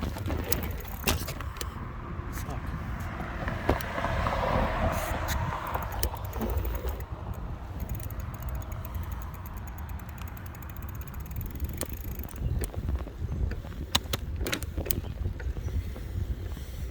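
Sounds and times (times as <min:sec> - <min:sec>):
wind rumbling on microphone: 0:00.0 - 0:16.9
sharp clicks: 0:05.2 - 0:15.6
light rapid ticking: 0:05.3 - 0:15.6.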